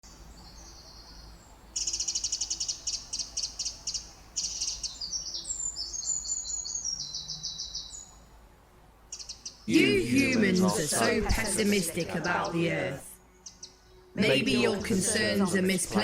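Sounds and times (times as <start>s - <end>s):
faint bird chirps: 0.0s - 8.3s, 9.1s - 10.8s.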